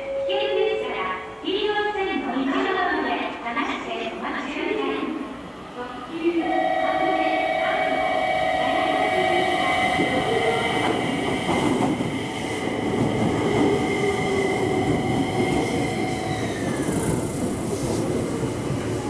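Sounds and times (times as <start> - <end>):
train whining tones: 6.3 - 19.0
train rumble: 6.4 - 19.0.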